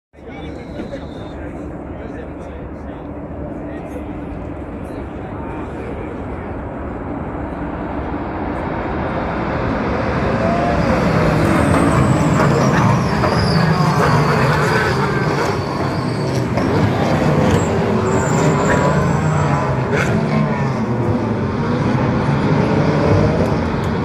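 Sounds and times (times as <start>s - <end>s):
race car engines: 0.1s - 24.0s.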